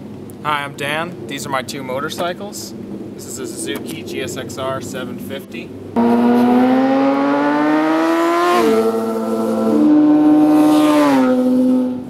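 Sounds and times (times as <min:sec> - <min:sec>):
motorcycle engine accelerating: 0:06.0 - 0:12.0.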